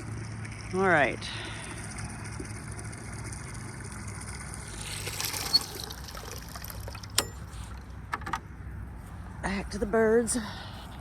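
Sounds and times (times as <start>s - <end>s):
water running and trickling: 0.0s - 7.8s
low steady hum: 0.0s - 11.0s.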